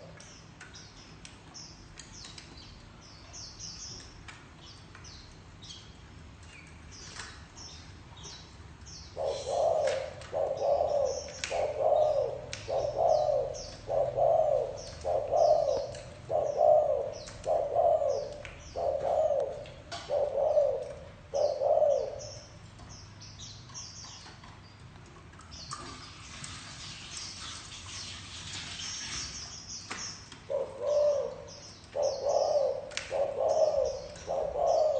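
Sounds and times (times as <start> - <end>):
small birds chirping: 0.0 - 34.9
dove cooing: 9.2 - 22.5, 30.5 - 34.9.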